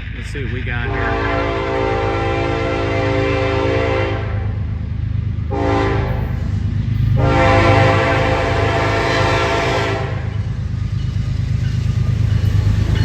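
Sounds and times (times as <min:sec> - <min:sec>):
locomotive low rumble: 0:00.0 - 0:13.0
locomotive air horn blasts: 0:00.9 - 0:04.5, 0:05.5 - 0:06.2, 0:07.2 - 0:10.3.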